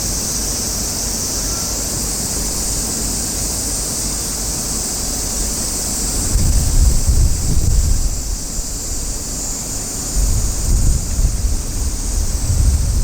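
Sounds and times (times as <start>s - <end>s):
steady high hiss: 0.0s - 13.0s
wind noise on microphone: 5.2s - 13.0s.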